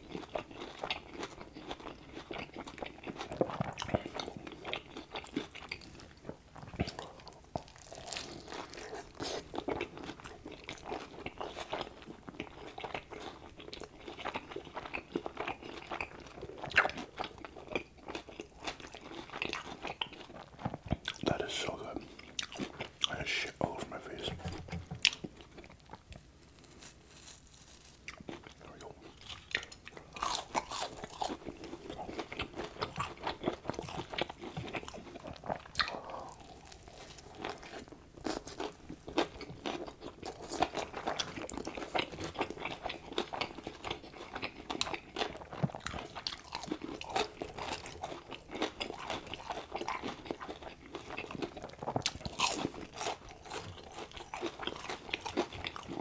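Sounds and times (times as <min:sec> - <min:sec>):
chewing and crunching food: 0:00.0 - 0:56.0
wet mouth sounds: 0:33.8 - 0:37.6.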